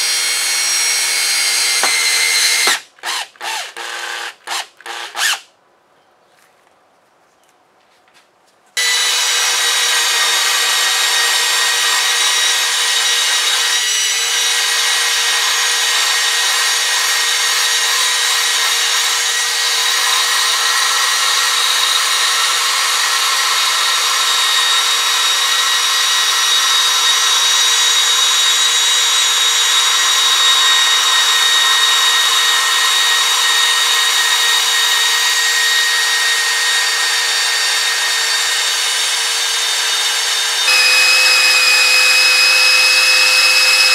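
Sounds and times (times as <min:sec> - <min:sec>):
power tool grinding metal: 0:00.0 - 0:05.4, 0:08.8 - 0:43.9.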